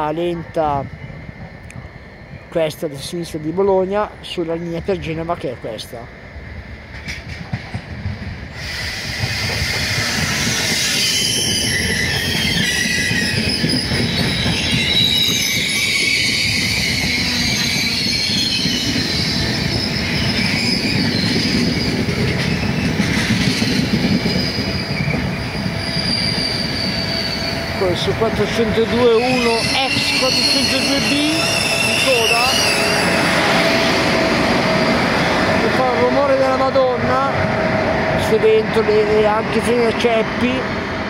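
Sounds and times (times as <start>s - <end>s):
train rumble passing: 0.0s - 41.0s
wheels squealing: 8.6s - 28.0s, 28.6s - 35.7s.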